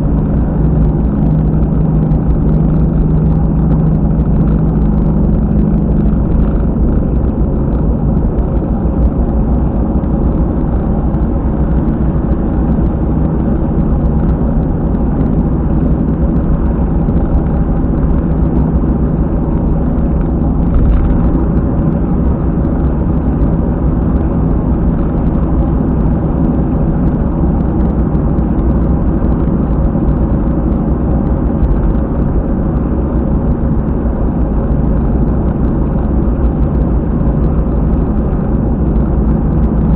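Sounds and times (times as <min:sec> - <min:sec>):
car driving at speed: 0:00.0 - 0:39.9
thumping rumble from rear wheel: 0:00.0 - 0:39.9.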